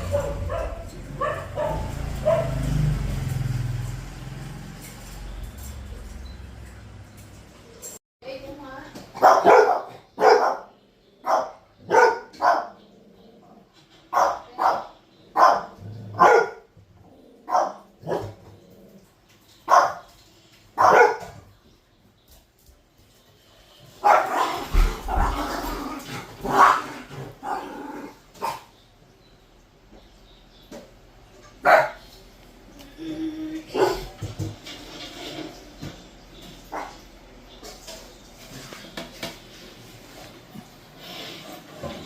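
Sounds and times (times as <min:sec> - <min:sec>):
dog barking: 0:00.0 - 0:02.8, 0:09.2 - 0:12.8, 0:14.1 - 0:16.7, 0:17.4 - 0:18.4, 0:19.7 - 0:20.1, 0:20.8 - 0:21.4, 0:24.0 - 0:25.4, 0:26.4 - 0:27.6, 0:28.4 - 0:28.7, 0:31.6 - 0:32.0, 0:33.7 - 0:34.2, 0:36.7 - 0:37.0.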